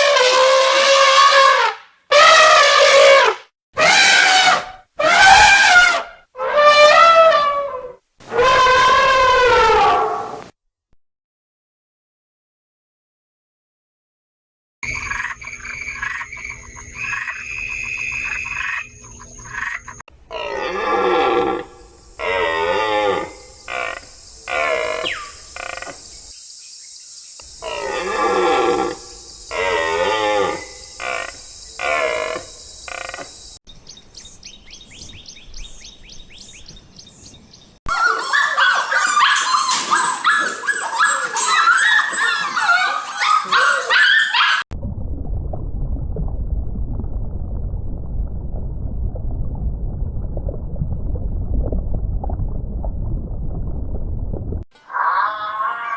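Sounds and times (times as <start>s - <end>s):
steady animal tones: 27.4s - 33.3s, 37.8s - 44.7s, 54.8s - 55.9s
chorus of overlapping animal calls: 37.9s - 44.6s, 54.8s - 55.9s
pitch-bending animal calls: 37.9s - 44.6s, 54.8s - 55.9s.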